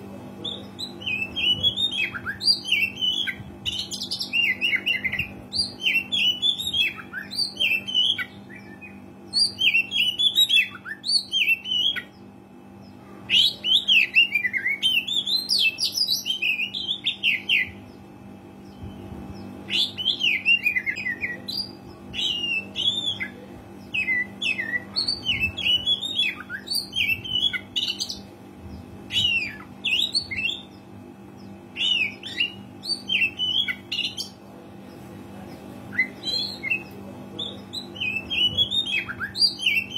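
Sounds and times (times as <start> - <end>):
steady low hum: 0.0 - 39.9
bird singing whistled phrases: 31.8 - 34.2.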